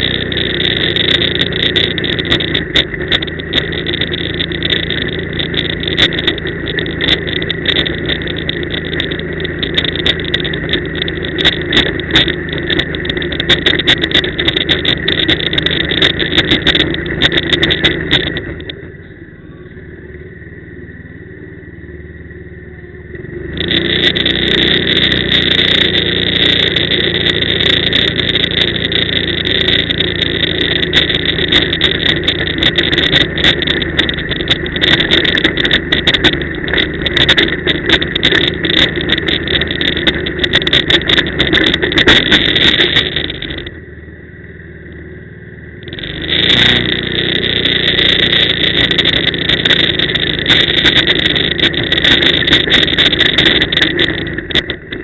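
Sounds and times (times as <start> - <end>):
quad engine revving and idling: 0.0 - 43.8, 45.8 - 55.0
wind buffeting microphone: 23.6 - 43.8, 45.9 - 55.0.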